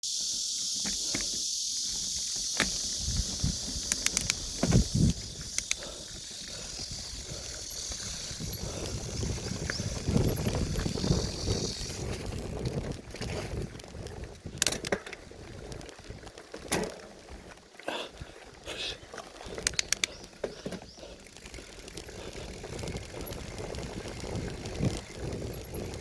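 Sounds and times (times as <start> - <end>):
steady high hiss: 0.0 - 8.6
bicycle tyres rumbling on ground: 0.0 - 26.0
bike clicks and rattles: 0.1 - 26.0.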